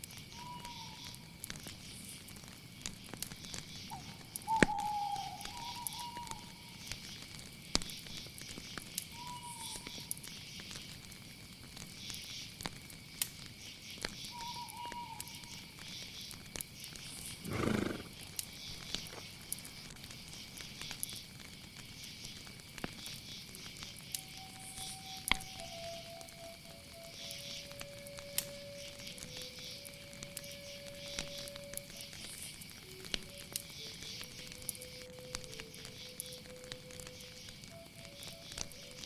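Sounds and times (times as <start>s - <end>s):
insects chirring: 0.0s - 39.0s
whistled calls: 0.3s - 1.2s, 3.8s - 7.0s, 9.1s - 10.1s, 14.2s - 16.1s, 23.8s - 39.0s
loud animal call: 17.4s - 18.1s.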